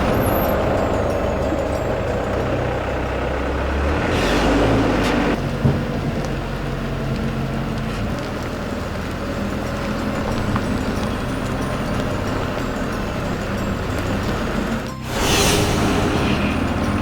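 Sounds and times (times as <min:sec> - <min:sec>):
truck engine running: 0:00.0 - 0:17.0
short air hisses: 0:15.0 - 0:17.0.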